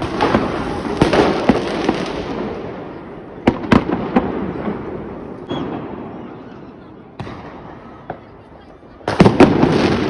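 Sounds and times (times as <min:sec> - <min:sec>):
fireworks crackling hiss: 0:00.0 - 0:05.7
firework bangs: 0:00.0 - 0:10.0.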